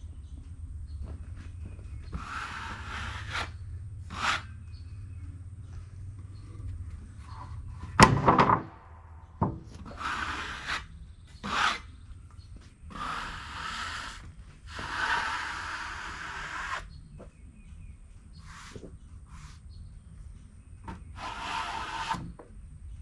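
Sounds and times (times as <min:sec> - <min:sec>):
wood sliding on wood: 0:01.6 - 0:04.6
wooden boards knocking: 0:07.8 - 0:09.9.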